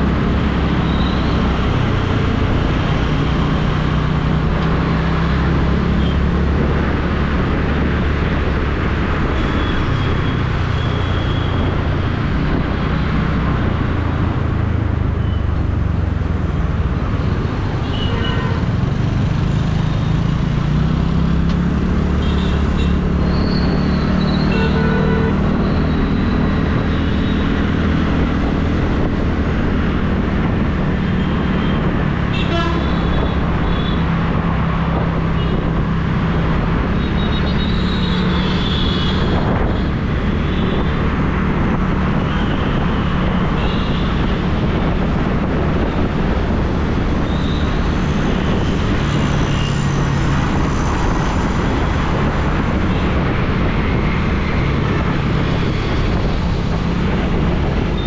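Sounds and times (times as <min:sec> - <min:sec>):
road and wind noise: 0:00.0 - 0:58.0
vehicle horn toots: 0:32.4 - 0:33.2.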